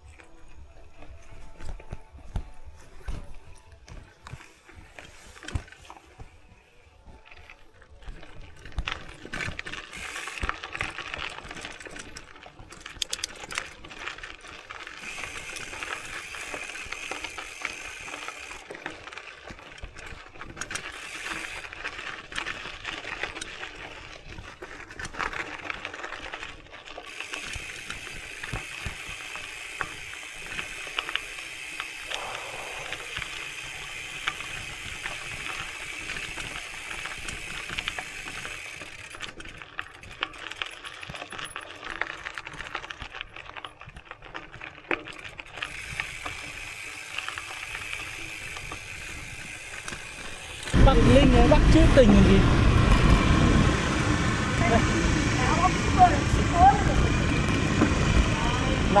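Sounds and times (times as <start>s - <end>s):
bike chain and parts rattling: 0.0s - 59.0s
freewheel ratchet buzzing: 9.9s - 10.5s, 15.0s - 18.6s, 20.9s - 21.8s, 27.1s - 40.8s, 45.4s - 59.0s.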